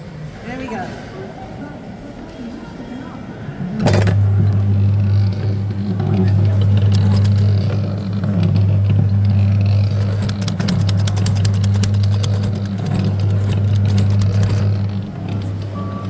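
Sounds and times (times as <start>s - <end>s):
kiddie ride low hum: 3.5s - 16.0s
fast run of clicks: 3.8s - 16.0s.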